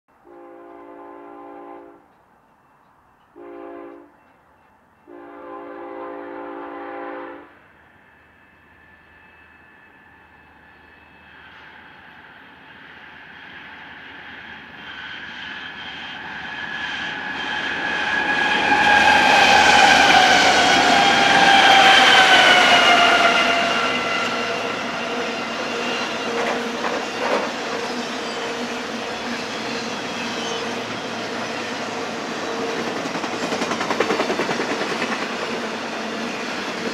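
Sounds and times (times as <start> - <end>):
freight train passing: 0.1 - 36.9
locomotive horn blasts: 0.2 - 2.1, 3.4 - 4.2, 5.0 - 7.6
metallic ringing squeal: 7.7 - 31.8.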